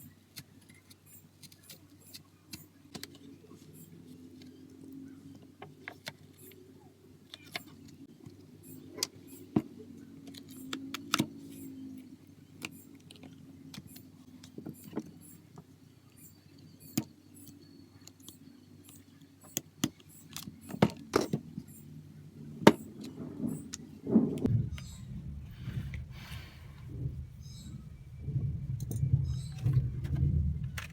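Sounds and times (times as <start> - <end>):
steady low hum: 6.3 - 30.9.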